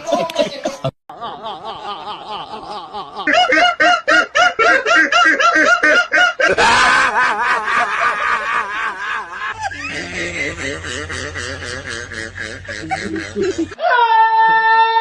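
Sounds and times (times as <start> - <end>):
person laughing hard: 0.0 - 14.1.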